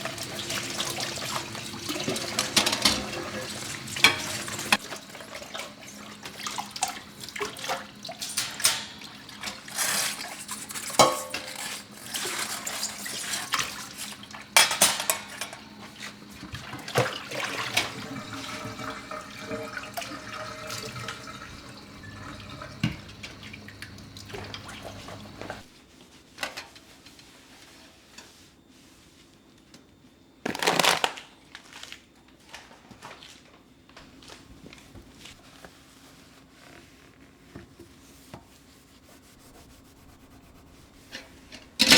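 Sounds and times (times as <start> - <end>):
tap water running: 0.0 - 25.7
dishes clinking: 1.9 - 4.8, 10.9 - 11.7.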